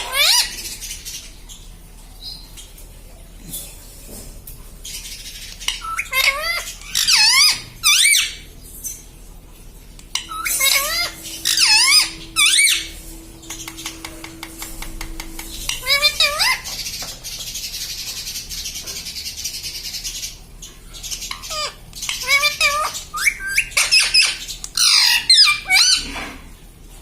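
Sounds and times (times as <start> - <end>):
parrot calling: 0.0 - 0.8, 5.6 - 8.4, 10.0 - 18.7, 21.2 - 26.1.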